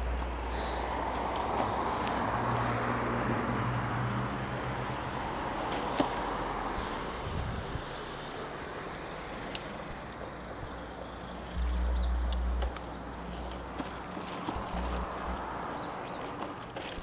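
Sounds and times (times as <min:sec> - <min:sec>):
car tyre hiss: 0:00.0 - 0:01.3, 0:06.2 - 0:11.8
low engine hum: 0:00.0 - 0:17.0.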